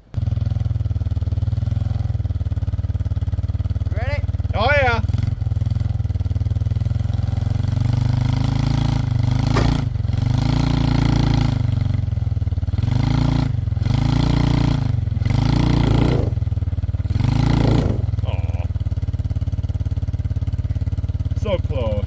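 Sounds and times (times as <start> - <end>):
vehicle engine revving: 0.0 - 22.0.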